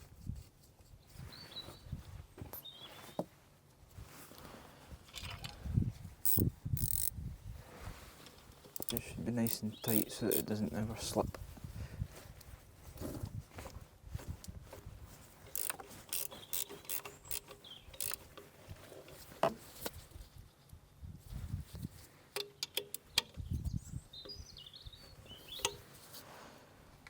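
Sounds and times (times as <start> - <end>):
hand tools clicking on metal: 6.2 - 7.1, 8.7 - 10.5, 15.4 - 19.2, 22.4 - 23.2.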